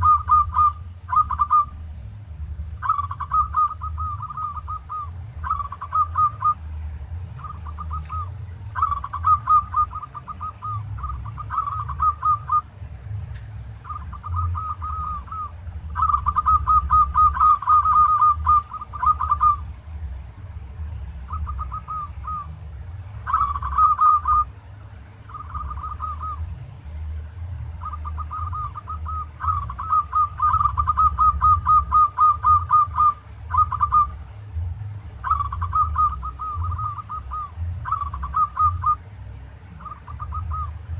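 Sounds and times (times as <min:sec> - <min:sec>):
high bird chirps: 0:00.0 - 0:01.8, 0:02.8 - 0:06.6, 0:07.4 - 0:12.7, 0:13.8 - 0:19.7, 0:23.2 - 0:24.5, 0:25.3 - 0:26.4, 0:27.8 - 0:34.2, 0:35.2 - 0:39.0
dove cooing: 0:00.0 - 0:12.8, 0:13.7 - 0:19.9, 0:20.8 - 0:34.4, 0:35.2 - 0:40.9.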